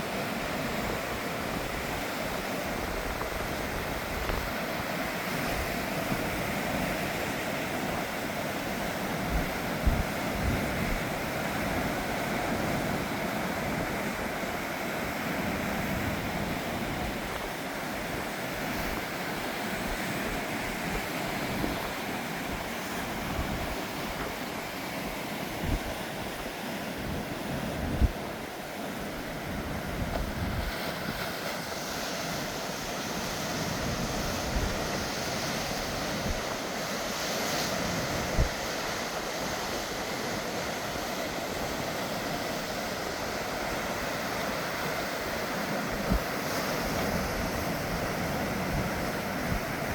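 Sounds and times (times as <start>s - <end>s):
sea waves washing onto beach: 0.0s - 49.9s
wind buffeting microphone: 9.0s - 14.1s, 15.4s - 24.4s, 25.5s - 26.2s, 26.9s - 31.4s, 33.4s - 36.8s, 37.7s - 38.8s, 45.8s - 49.9s.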